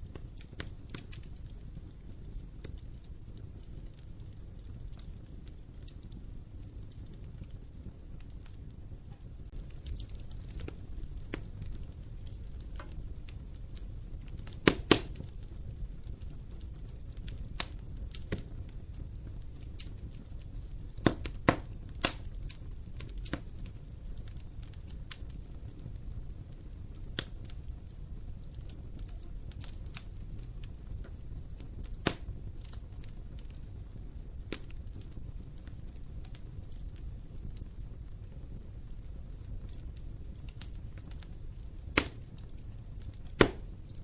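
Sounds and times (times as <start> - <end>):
flames rumbling: 0.0 - 44.0
wood fire crackling and popping: 0.0 - 44.0.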